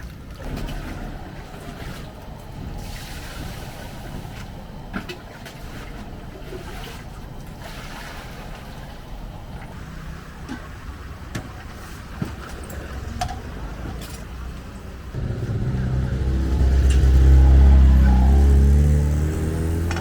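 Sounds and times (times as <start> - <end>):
vehicle engine passing by: 15.1 - 20.0.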